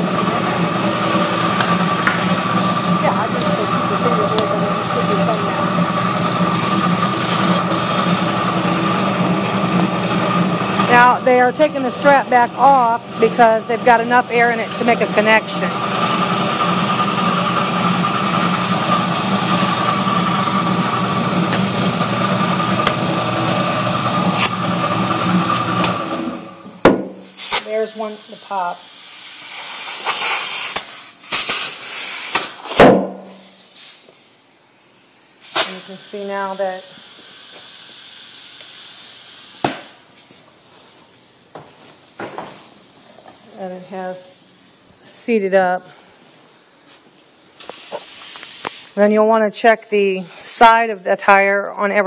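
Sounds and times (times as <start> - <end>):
air compressor running: 0.0 - 50.9
compressed air hissing into tire: 27.2 - 32.6, 33.5 - 50.6.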